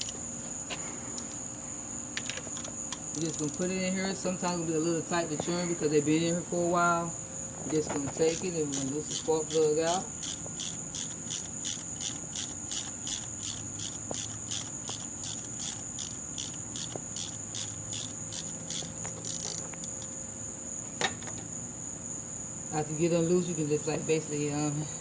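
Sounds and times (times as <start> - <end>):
insects chirping: 0.0 - 25.0
socket wrench clicks: 2.2 - 3.7, 8.3 - 20.1.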